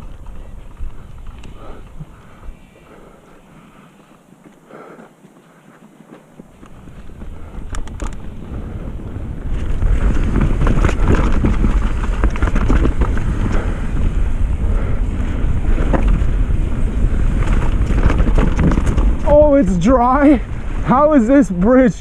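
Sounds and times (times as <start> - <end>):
bike rattling and knocking: 6.4 - 22.0
wind rushing over microphone: 6.4 - 22.0.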